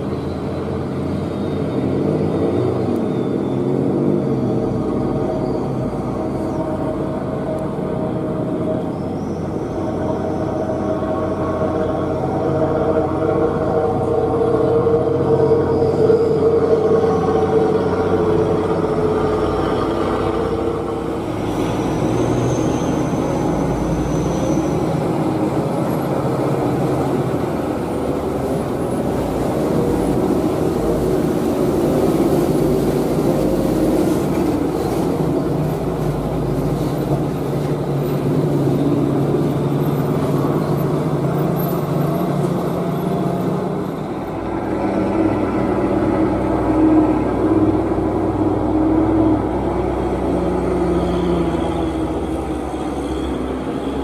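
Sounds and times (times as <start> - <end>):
truck engine labouring: 0.0 - 54.0.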